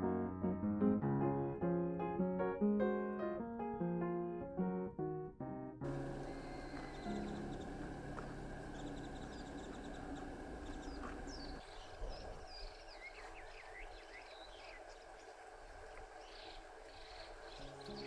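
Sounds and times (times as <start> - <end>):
small birds chirping: 5.8 - 18.0.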